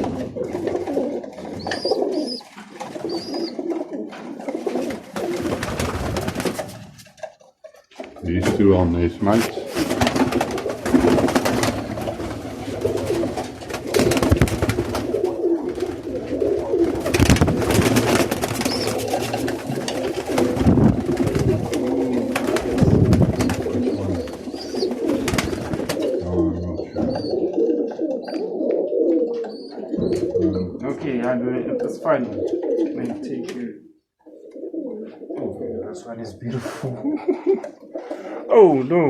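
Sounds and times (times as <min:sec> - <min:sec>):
clattering and rustling: 0:00.0 - 0:26.2
pigeons cooing: 0:00.0 - 0:39.0.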